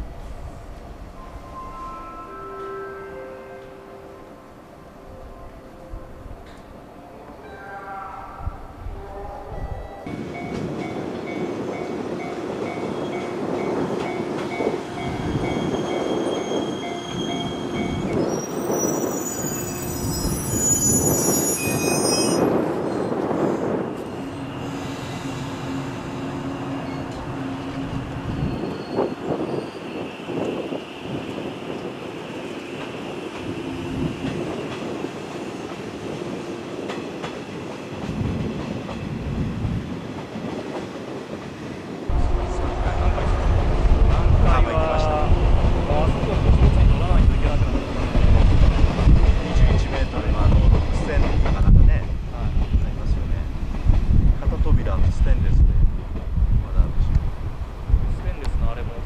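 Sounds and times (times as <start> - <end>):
electric train rumbling: 0.0 - 59.0
high wheel squeal: 15.2 - 23.1, 24.0 - 30.8
heavy low rumble: 42.1 - 49.7.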